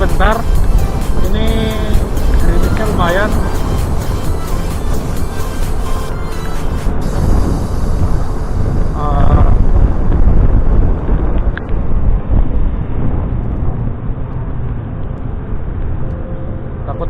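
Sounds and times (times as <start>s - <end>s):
wavering pitched sound: 0.0s - 10.0s
rumbling wind and road noise: 0.0s - 17.0s.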